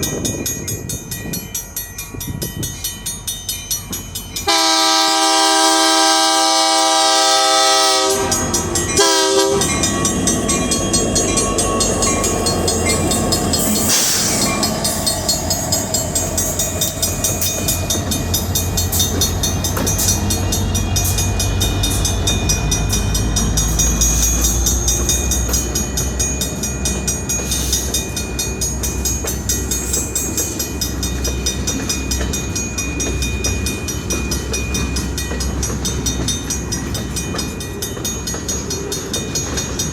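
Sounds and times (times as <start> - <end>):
train passing with rumble: 0.0 - 39.9
train horn blasts: 4.4 - 9.8
train wheels clickety-clack: 6.4 - 39.9.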